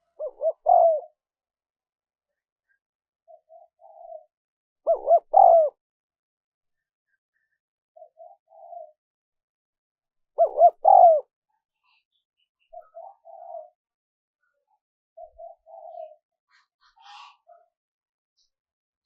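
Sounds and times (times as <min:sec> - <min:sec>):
dove cooing: 0:00.0 - 0:01.2, 0:03.3 - 0:04.3, 0:04.9 - 0:05.8, 0:08.0 - 0:09.0, 0:10.4 - 0:11.3, 0:12.7 - 0:13.8, 0:15.2 - 0:16.2.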